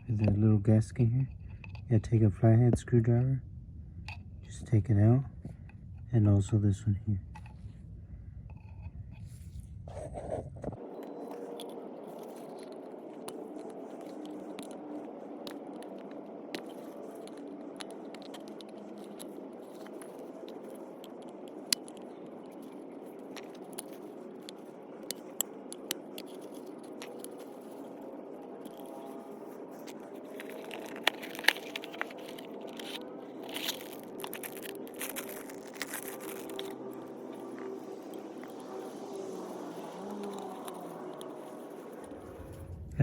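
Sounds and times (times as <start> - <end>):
screwdriver scraping and clicking: 9.9 - 38.8.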